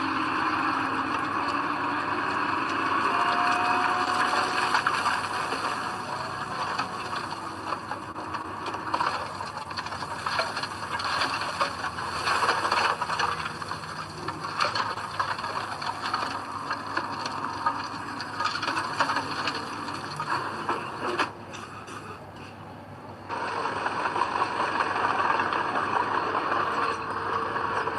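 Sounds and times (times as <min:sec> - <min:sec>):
earthmoving machinery grinding: 0:00.0 - 0:21.5.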